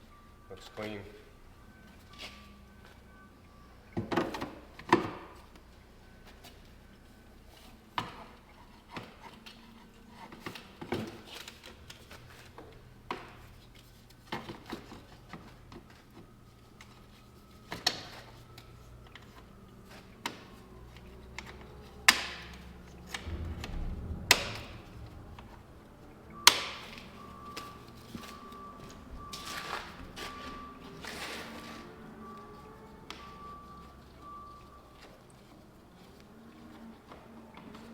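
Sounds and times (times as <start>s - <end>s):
faint low hum: 22.8s - 29.4s
metal clanks and knocks: 23.2s - 27.3s.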